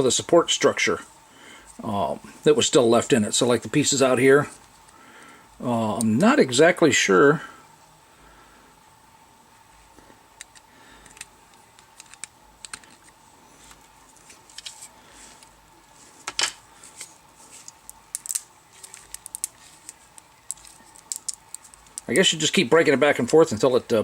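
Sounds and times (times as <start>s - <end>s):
plastic parts clicking: 10.4s - 13.2s, 17.6s - 22.2s.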